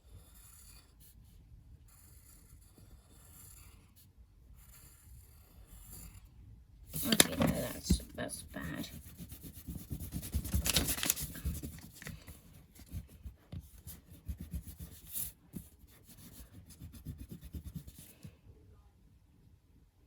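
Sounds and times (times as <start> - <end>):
pen scratching on paper: 0.0 - 1.2, 1.9 - 6.3, 6.9 - 18.3.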